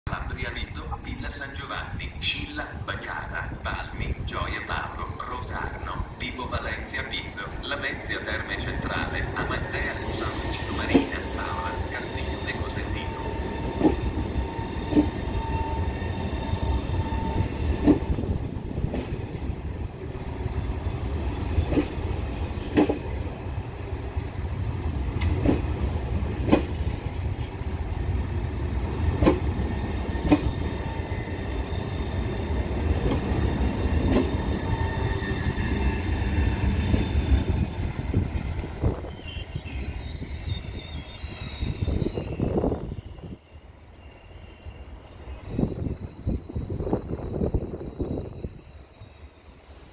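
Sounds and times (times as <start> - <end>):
train rumbling past: 0.1 - 49.9
faint wheel squeal: 9.7 - 18.6, 20.2 - 23.1, 39.1 - 49.9
train wheel knocks: 26.4 - 27.0, 29.2 - 29.5, 30.2 - 30.5.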